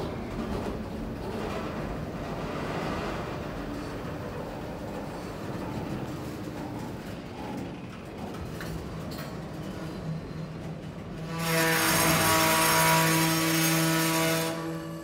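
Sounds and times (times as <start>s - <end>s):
train wheels rumbling on rails: 0.0s - 15.0s
loud grinding squeal: 11.3s - 15.0s.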